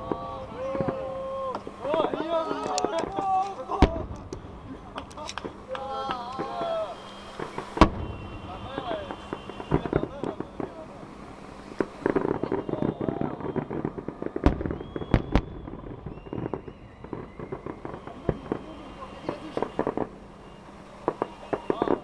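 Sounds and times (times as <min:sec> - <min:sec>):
fireworks banging and popping: 0:00.0 - 0:22.0.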